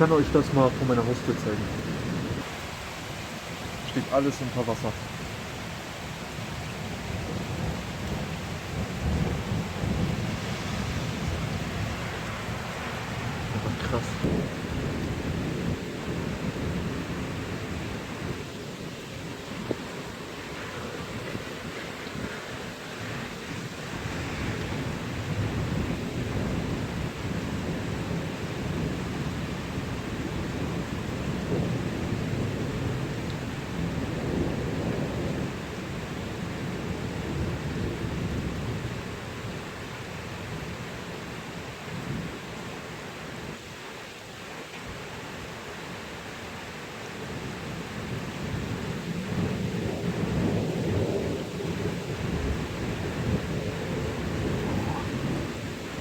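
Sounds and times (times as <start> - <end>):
thunder rumbling: 0.0 - 2.7, 6.7 - 18.5, 48.5 - 56.0
rain hissing: 0.0 - 28.9, 48.2 - 56.0.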